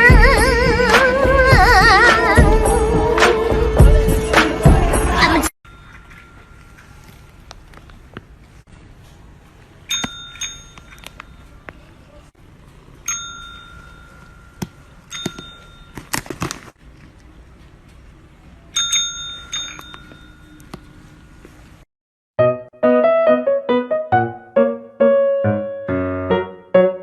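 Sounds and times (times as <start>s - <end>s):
small bell ringing: 9.9s - 11.6s, 13.0s - 16.0s, 18.8s - 20.6s.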